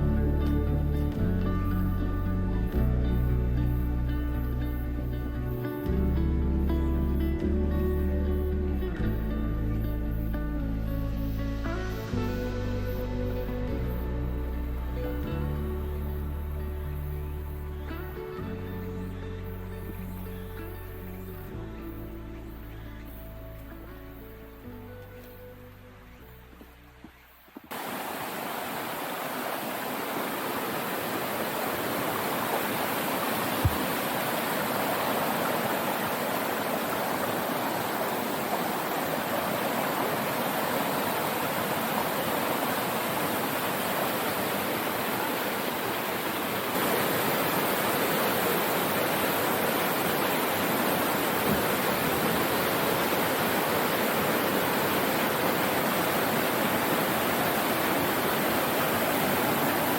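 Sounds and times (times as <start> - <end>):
waterfall rushing and splashing: 27.6 - 59.9.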